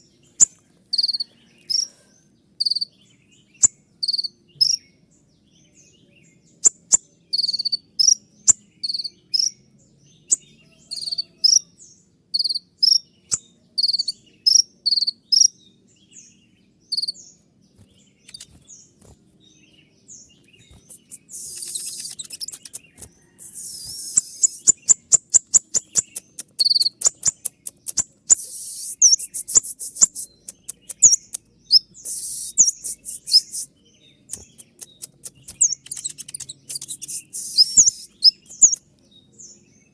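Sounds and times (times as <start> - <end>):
sunbird singing high clipped notes: 16.9 - 39.9
bird rapid ticking notes: 18.3 - 18.7, 20.6 - 31.4, 34.3 - 38.8.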